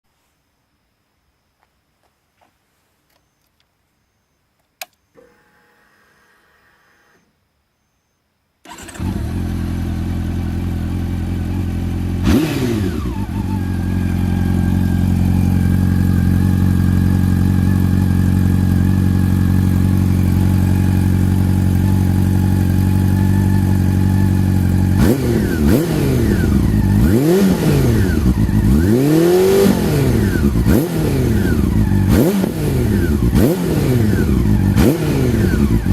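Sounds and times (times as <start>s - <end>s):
faint hum: 0.1s - 8.6s
click: 3.1s - 3.7s, 4.6s - 5.3s
motorcycle engine idling: 8.7s - 35.9s
motorcycle engine revving: 8.7s - 35.9s.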